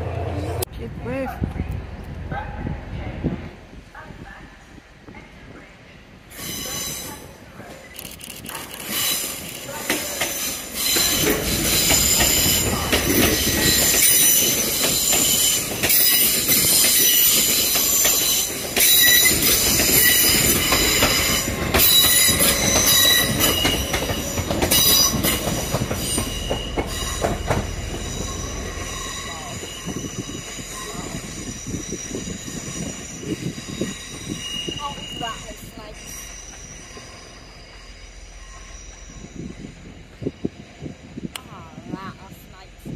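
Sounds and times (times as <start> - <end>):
passenger train passing: 0.0 - 42.9
wheels squealing: 6.3 - 39.8.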